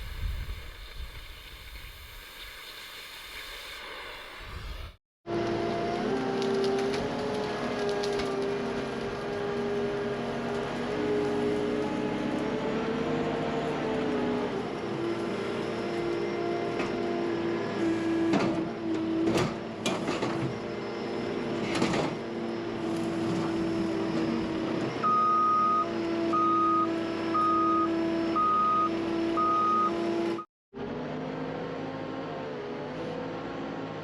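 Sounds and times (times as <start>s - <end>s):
skid steer engine running: 5.3s - 32.7s
reversing alarm beeps: 25.0s - 30.5s.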